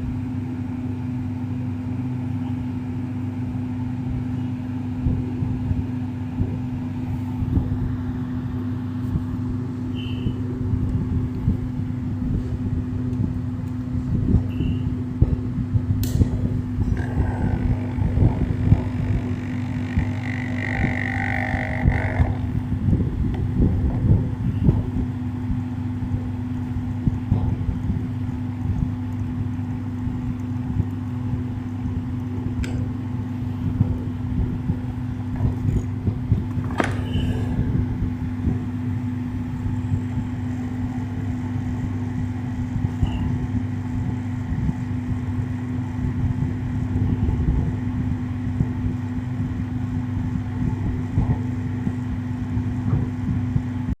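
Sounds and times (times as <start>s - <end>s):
electric fan humming: 0.0s - 54.0s.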